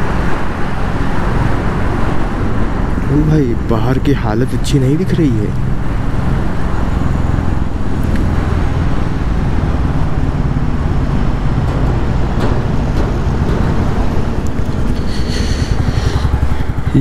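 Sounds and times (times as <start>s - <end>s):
wind and road noise: 0.0s - 17.0s
motorcycle engine running: 5.7s - 17.0s.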